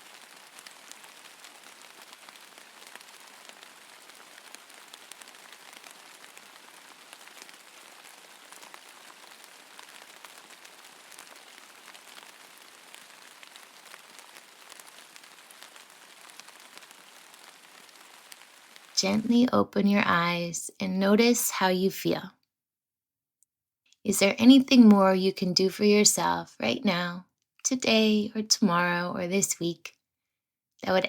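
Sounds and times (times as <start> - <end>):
steady rain falling: 0.0 - 22.2.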